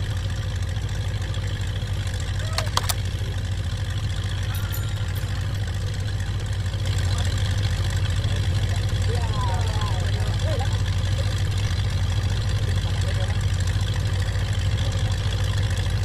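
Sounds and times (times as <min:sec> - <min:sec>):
engine humming: 0:00.0 - 0:16.0
sharp clicks: 0:02.5 - 0:03.0.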